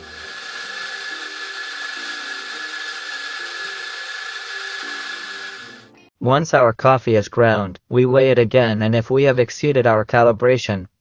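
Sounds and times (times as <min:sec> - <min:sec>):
espresso grinder grinding coffee: 0:00.0 - 0:06.0.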